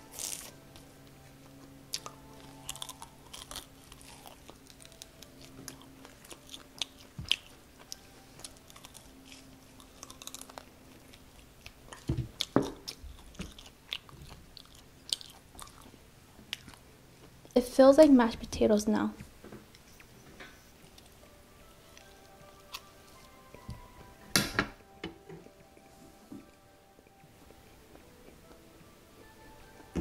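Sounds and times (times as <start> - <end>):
biting and chewing crunches: 0.0 - 0.6, 1.4 - 17.5.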